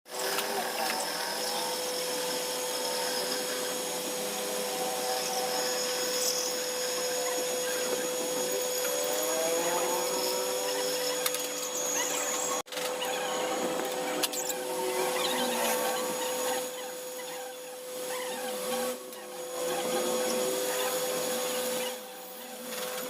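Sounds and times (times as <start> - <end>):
motorised tool whining: 0.1 - 23.0.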